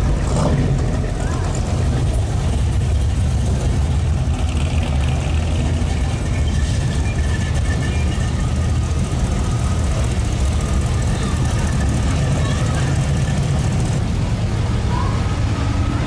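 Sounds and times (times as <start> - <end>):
car engines rumbling: 0.0 - 16.0.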